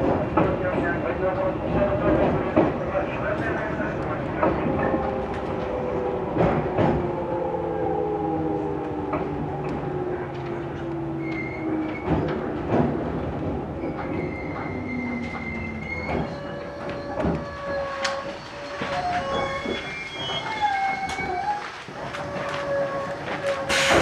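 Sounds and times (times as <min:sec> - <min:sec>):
electric train low hum: 0:00.0 - 0:24.0
train running rumble: 0:00.0 - 0:24.0
high-pitched brake squeals: 0:13.8 - 0:21.6.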